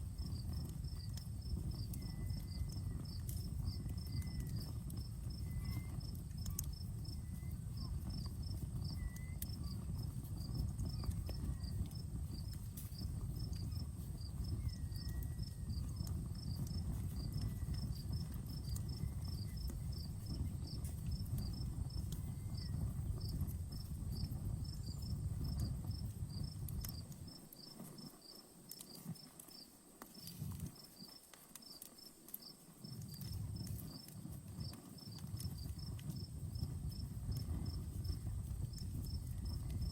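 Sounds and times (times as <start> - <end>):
campfire crackling and popping: 0.0 - 39.9
crickets chirping: 0.0 - 39.9
high insect trill: 0.2 - 39.9.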